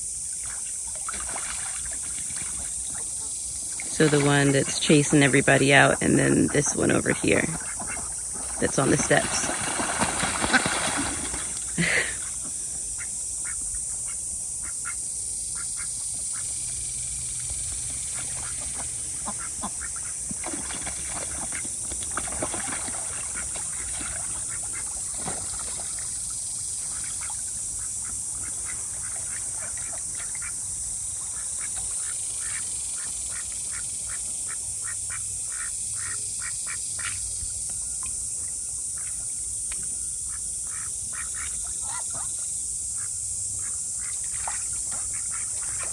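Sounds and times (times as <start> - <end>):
ducks quacking: 4.0 - 13.6, 18.2 - 20.2.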